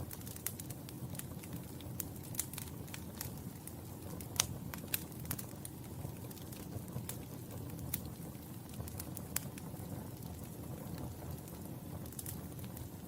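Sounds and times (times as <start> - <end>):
low rumble of flames: 0.0 - 13.0
wood fire crackling: 0.0 - 13.0
sharp pops and snaps: 0.1 - 7.2.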